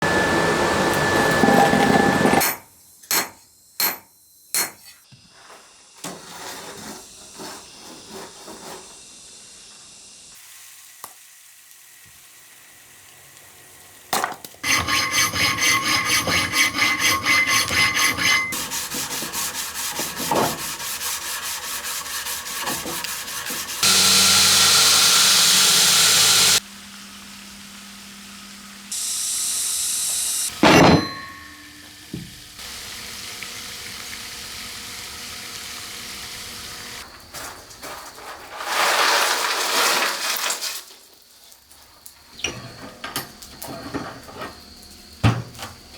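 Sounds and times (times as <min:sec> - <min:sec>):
rasping metalwork strokes: 0:14.6 - 0:26.6.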